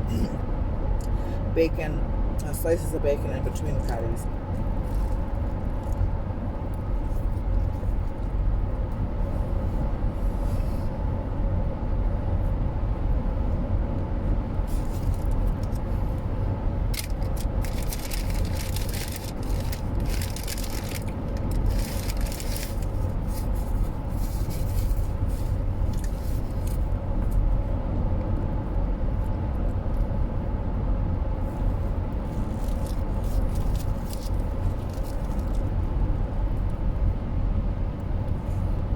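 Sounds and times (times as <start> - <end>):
car road and engine rumble: 0.0 - 38.9
rustling: 17.0 - 26.8, 32.3 - 35.6.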